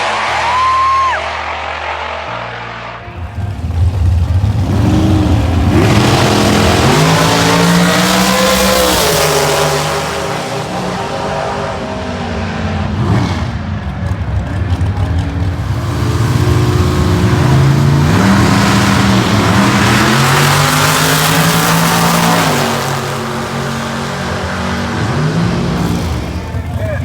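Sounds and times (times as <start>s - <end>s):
car engine accelerating hard: 0.0s - 27.0s.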